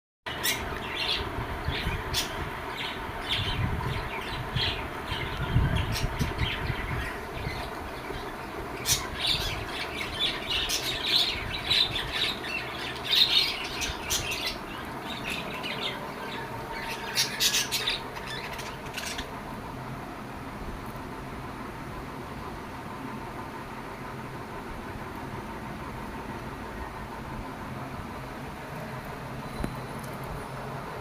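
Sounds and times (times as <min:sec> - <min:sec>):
lovebirds squawking: 0:00.3 - 0:19.4
faint hum: 0:00.3 - 0:31.0.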